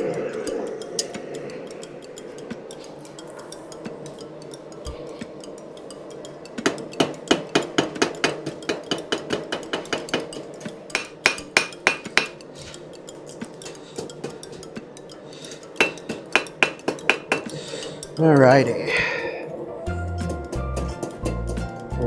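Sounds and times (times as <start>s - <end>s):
hammer striking anvil: 6.6s - 12.4s, 15.8s - 17.6s.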